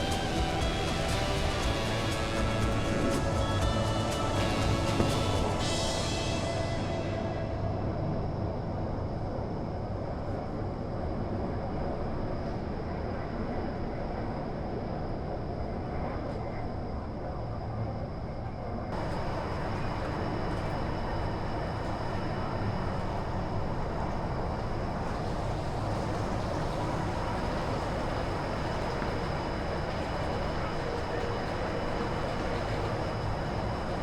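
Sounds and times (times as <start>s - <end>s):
train wheels rumbling on track: 0.0s - 9.9s, 18.9s - 34.0s
faint high whine: 0.0s - 34.0s.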